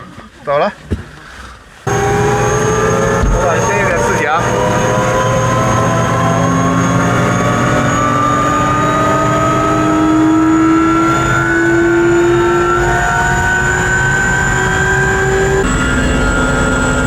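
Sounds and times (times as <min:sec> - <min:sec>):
helicopter turbine and rotor whine: 0:01.9 - 0:17.0.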